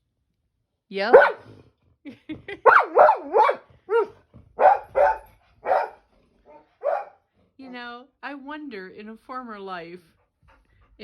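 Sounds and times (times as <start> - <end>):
dog barking: 1.1 - 1.6, 2.6 - 7.2.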